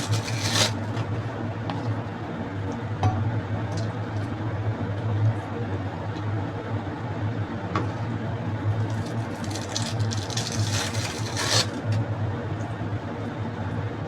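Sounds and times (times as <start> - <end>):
crackly rustling: 0.0 - 2.0, 8.8 - 12.0
low mechanical hum: 0.0 - 14.0.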